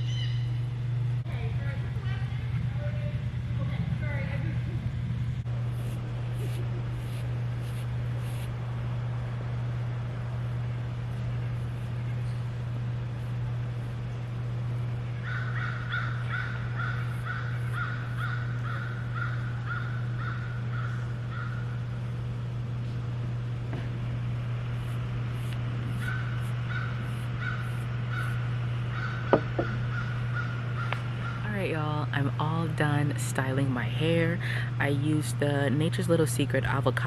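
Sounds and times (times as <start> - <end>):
bird calling repeated notes: 0.0 - 0.6, 26.0 - 31.5
steady low hum: 0.0 - 37.0.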